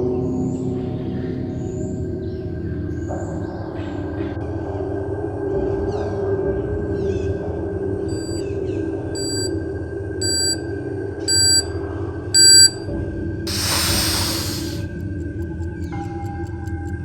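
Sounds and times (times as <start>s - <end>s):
electronic countdown beeps: 8.1s - 8.4s, 9.2s - 9.5s, 10.2s - 10.6s, 11.3s - 11.8s, 12.4s - 12.8s.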